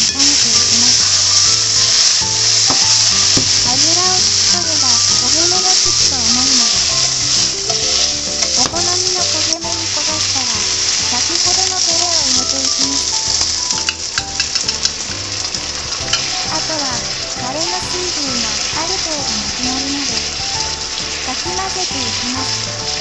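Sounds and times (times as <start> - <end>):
food sizzling in hot oil: 0.0 - 23.0
sauce pouring into pan: 0.0 - 23.0
chopsticks clicking against pan: 0.1 - 15.1, 16.0 - 16.3.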